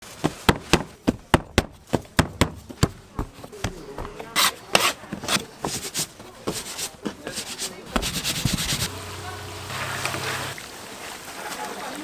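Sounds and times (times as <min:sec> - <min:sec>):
dough rubbing strokes: 0:05.7 - 0:10.6.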